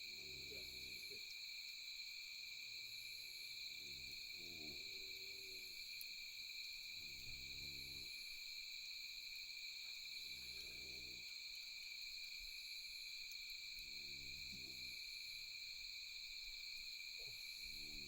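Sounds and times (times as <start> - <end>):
night insect chorus: 0.0 - 18.0.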